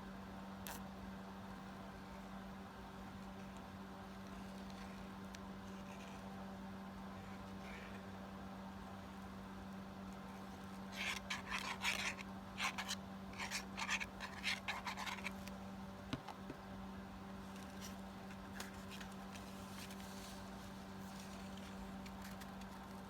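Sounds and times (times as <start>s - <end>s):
low electrical hum: 0.0s - 23.0s
paper and card rasping: 10.2s - 15.5s.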